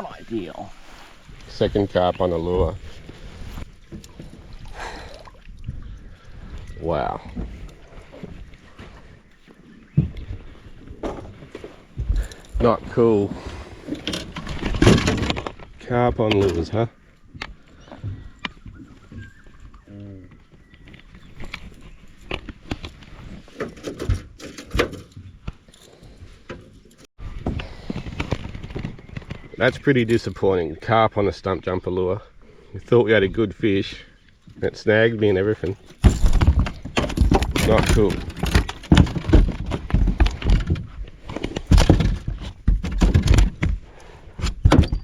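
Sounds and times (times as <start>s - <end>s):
knocks and clatter in a boat: 1.3s - 31.0s, 33.2s - 45.0s
knocks and thumps on boat: 35.6s - 45.0s.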